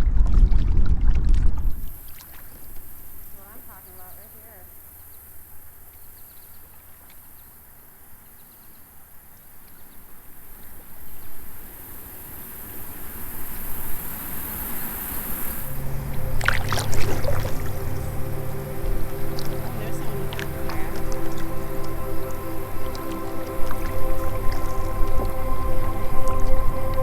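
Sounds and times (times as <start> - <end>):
steady low hum: 15.1 - 27.0
paddle strokes splashing water: 15.5 - 27.0.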